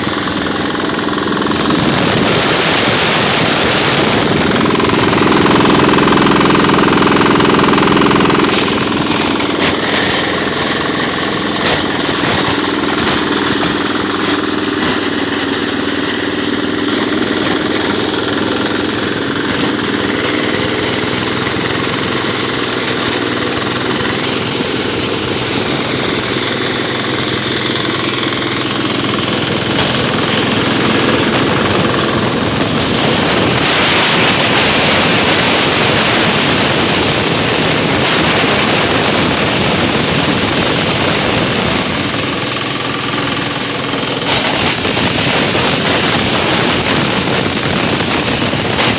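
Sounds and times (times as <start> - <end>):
diesel engine knocking: 0.0 - 48.9.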